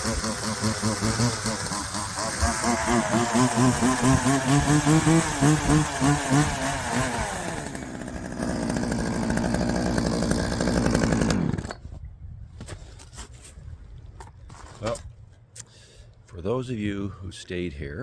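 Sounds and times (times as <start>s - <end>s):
chainsaw engine revving: 0.0s - 11.8s.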